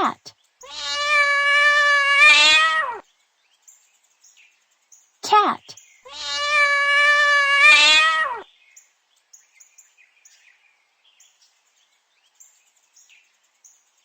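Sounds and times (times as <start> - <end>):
cat meowing: 0.6 - 3.0, 6.1 - 8.4.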